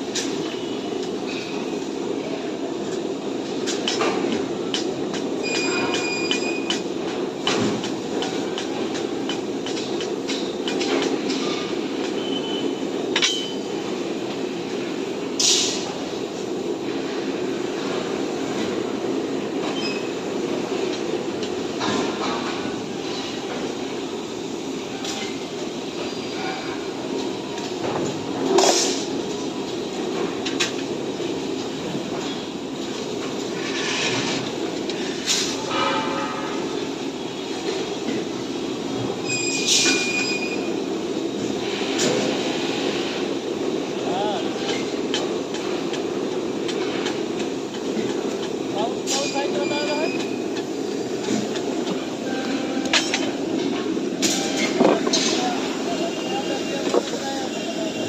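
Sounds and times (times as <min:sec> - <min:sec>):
metallic screech of cutting steel: 0:39.2 - 0:40.6.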